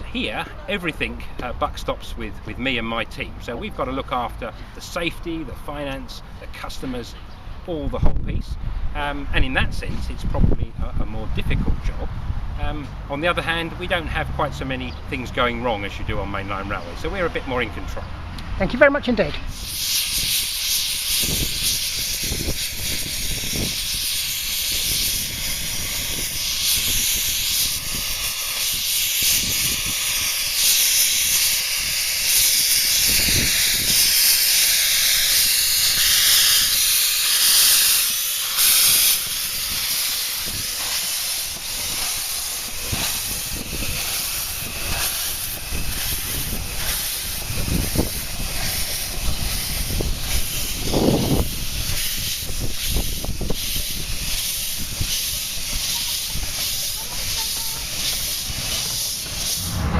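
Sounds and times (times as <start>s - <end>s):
steam locomotive hissing: 19.5s - 59.9s.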